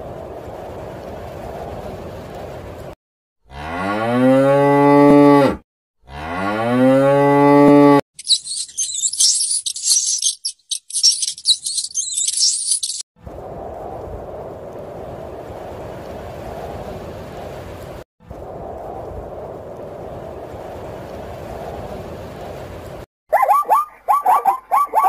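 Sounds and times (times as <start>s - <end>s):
cow mooing: 3.5s - 8.0s
high-pitched chirping: 8.2s - 13.0s.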